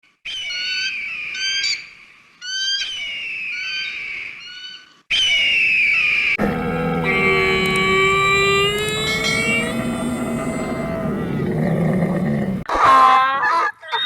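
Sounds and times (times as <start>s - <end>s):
bird calling: 6.4s - 12.7s
steady lower tones: 6.4s - 12.7s.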